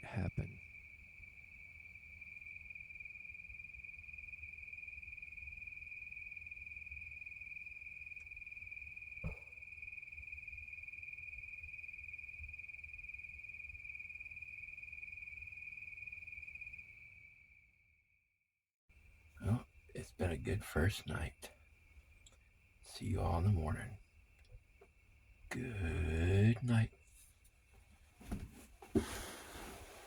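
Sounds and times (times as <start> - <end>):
crickets trilling: 0.0 - 17.8, 18.9 - 30.0
brief knock: 9.2 - 9.5.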